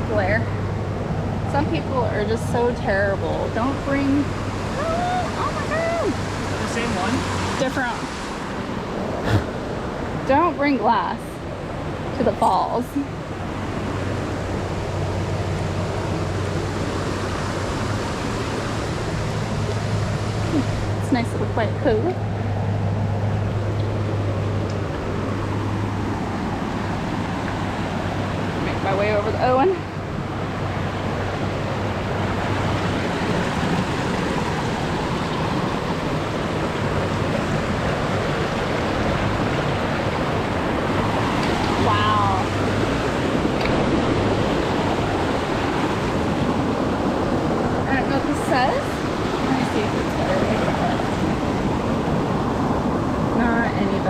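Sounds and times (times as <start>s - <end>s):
creek water rushing: 0.0s - 54.0s.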